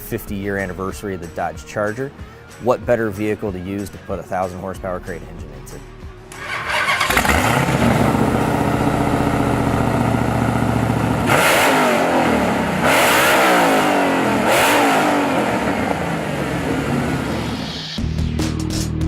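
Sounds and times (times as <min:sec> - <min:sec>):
car engine idling and revving: 0:06.3 - 0:18.0.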